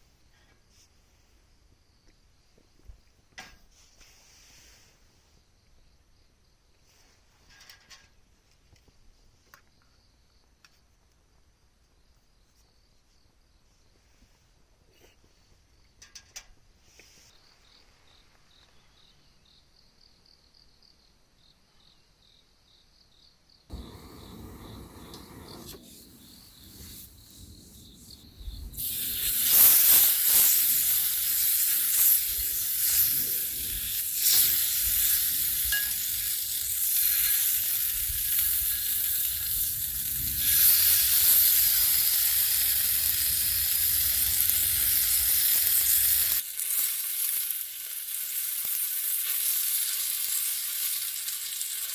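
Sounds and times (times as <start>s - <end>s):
meat sizzling on hot metal: 23.7s - 51.9s.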